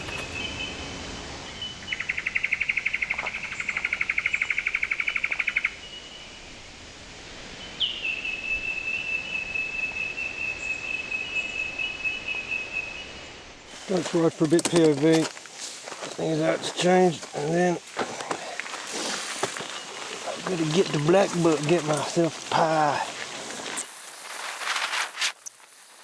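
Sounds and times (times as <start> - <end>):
cicadas trilling: 13.7 - 26.0.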